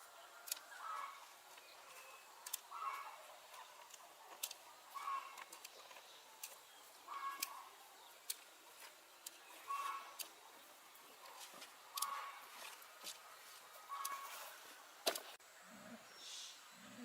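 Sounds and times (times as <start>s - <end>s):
bird calling: 0.6s - 12.8s, 13.4s - 14.6s.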